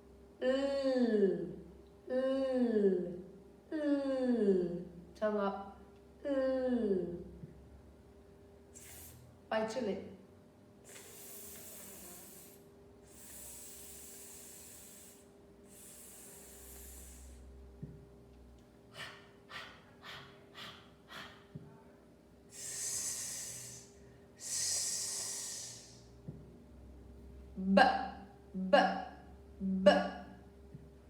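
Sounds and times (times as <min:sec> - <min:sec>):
woman making phonics sounds: 0:00.4 - 0:05.4, 0:06.2 - 0:07.5, 0:18.9 - 0:21.8, 0:22.5 - 0:25.9, 0:27.5 - 0:30.4.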